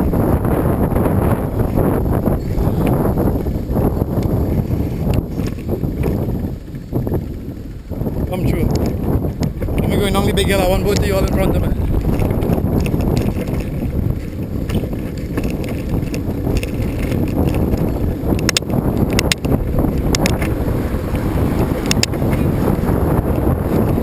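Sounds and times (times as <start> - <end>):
wind buffeting microphone: 0.0 - 24.0
sharp clicks: 15.4 - 20.6, 21.8 - 22.2.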